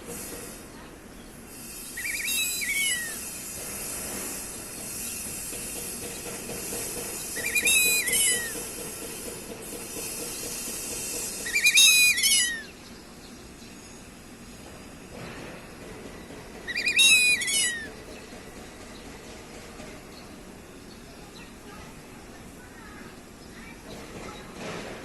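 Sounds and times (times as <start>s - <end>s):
steady hiss: 0.0s - 25.0s
duck whistling calls: 1.8s - 3.4s, 6.5s - 12.8s, 16.6s - 18.0s.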